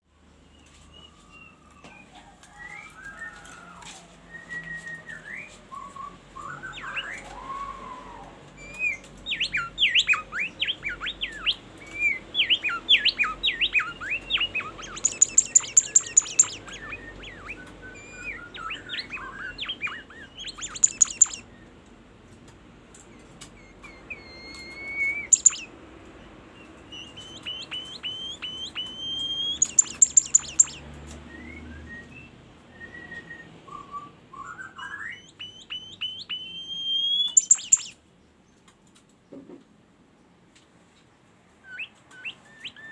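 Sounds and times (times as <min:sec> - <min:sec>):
songbird singing: 0:04.4 - 0:21.9, 0:22.9 - 0:39.4, 0:41.6 - 0:42.9
rapid high-pitched bird notes: 0:08.8 - 0:21.5, 0:23.7 - 0:25.7, 0:27.0 - 0:30.8, 0:35.1 - 0:38.0.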